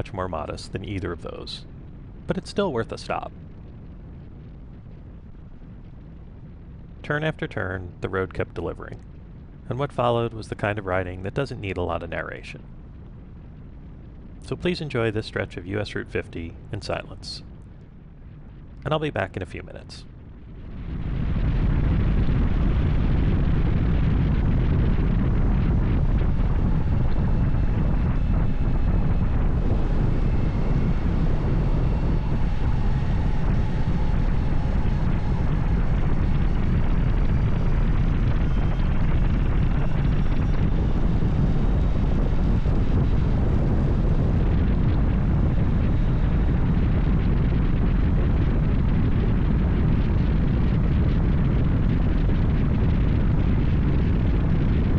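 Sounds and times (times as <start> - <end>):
wind noise on microphone: 0.0 - 54.9
faint tones rising and falling: 20.8 - 49.4.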